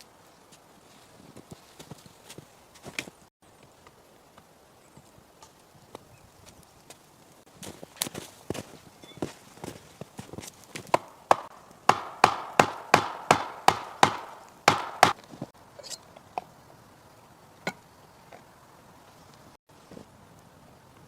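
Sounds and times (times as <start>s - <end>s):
axe chopping wood: 10.8s - 15.3s.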